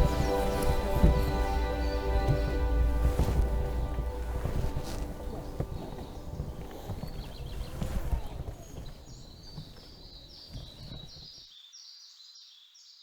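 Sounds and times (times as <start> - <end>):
low rumble: 0.0 - 7.6
birds chirping: 0.0 - 12.8.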